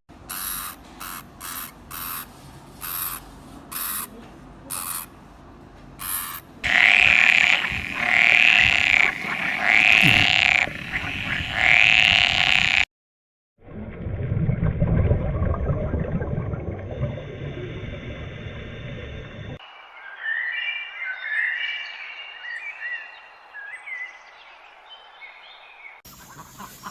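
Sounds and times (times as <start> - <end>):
animal calling: 0.3 - 5.1, 6.0 - 12.8
low rough animal sound: 6.7 - 10.7.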